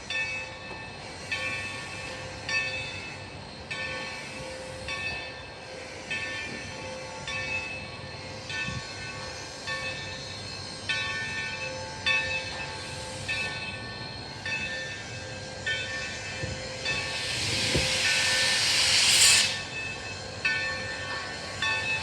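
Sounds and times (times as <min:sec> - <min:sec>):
steam locomotive bell ringing: 0:00.0 - 0:22.0
hissing steam rush: 0:12.6 - 0:22.0.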